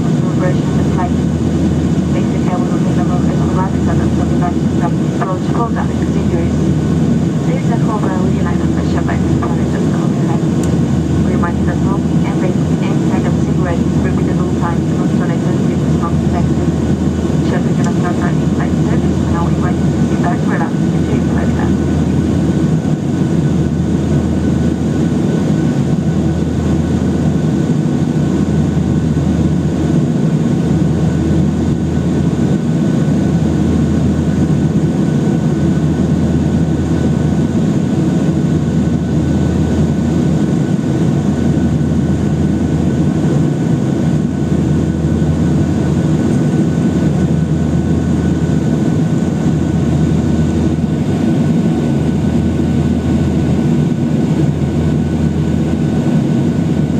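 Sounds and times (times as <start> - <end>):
jet engine cabin rumble: 0.0 - 56.9.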